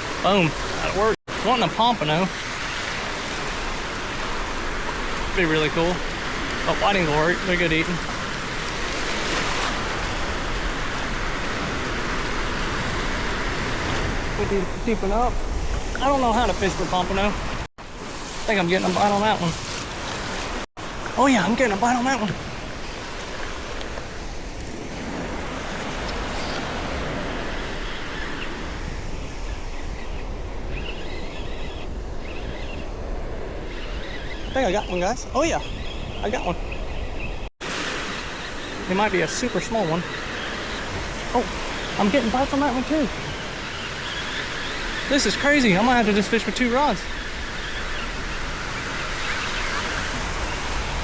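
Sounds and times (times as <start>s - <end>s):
surf washing on a beach: 0.0s - 31.2s, 37.6s - 51.0s
wind buffeting microphone: 2.3s - 37.5s.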